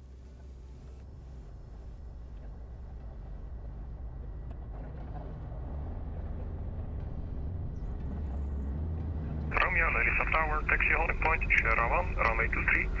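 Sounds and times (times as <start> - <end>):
aircraft piston engine hum: 9.5 - 13.0.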